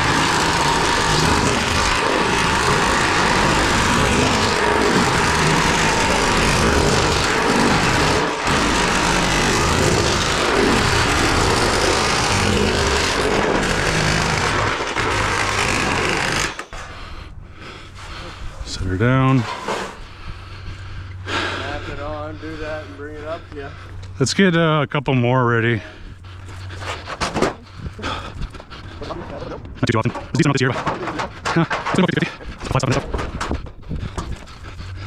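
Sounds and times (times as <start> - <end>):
cordless power tool rattling: 0.0 - 16.8.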